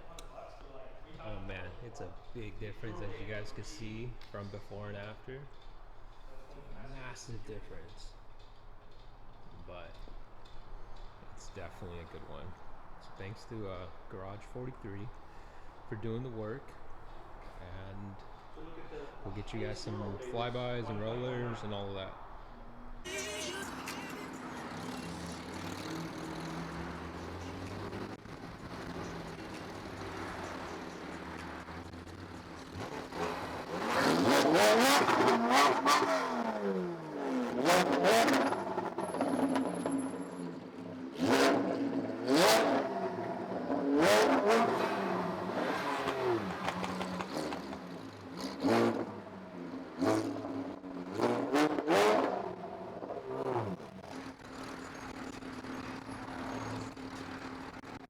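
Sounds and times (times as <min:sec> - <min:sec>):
sports car engine revving: 0:23.1 - 0:58.0.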